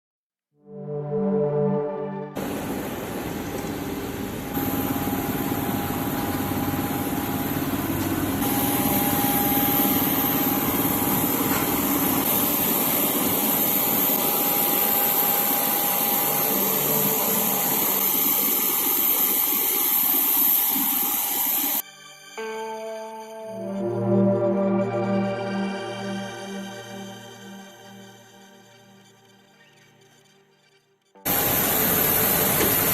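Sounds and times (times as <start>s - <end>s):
aircraft engines whining in cabin: 2.4s - 21.8s, 31.3s - 32.9s.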